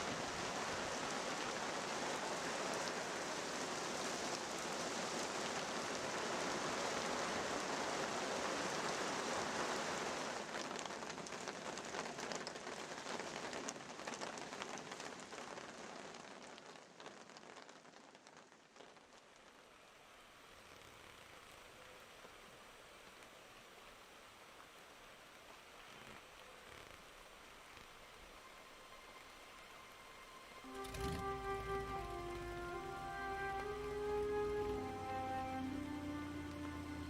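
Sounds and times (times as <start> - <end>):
heavy rain falling: 0.0 - 37.0
single raindrops: 30.6 - 37.0.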